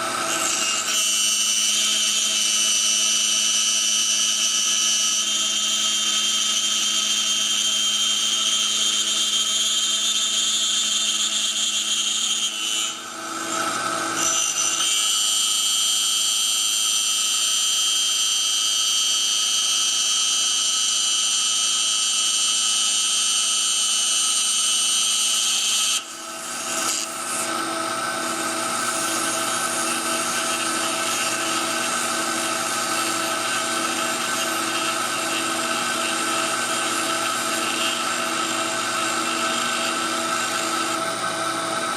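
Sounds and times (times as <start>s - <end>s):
cnc spindle whine cutting wood: 0.0s - 41.9s.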